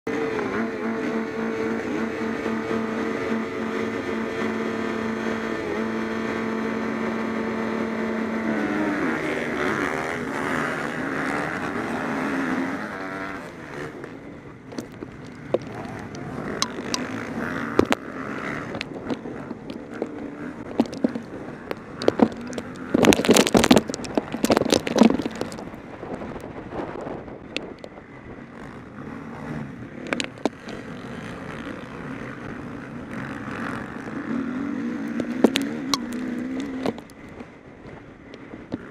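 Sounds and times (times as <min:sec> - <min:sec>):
motocross bikes revving: 0:00.1 - 0:26.4, 0:27.0 - 0:38.9
wind buffeting microphone: 0:13.4 - 0:29.1.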